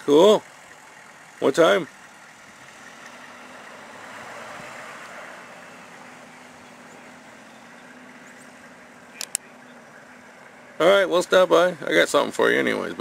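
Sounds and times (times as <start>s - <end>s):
faint engine hum: 0.0s - 13.0s
tyres hissing on slushy road: 2.0s - 9.0s.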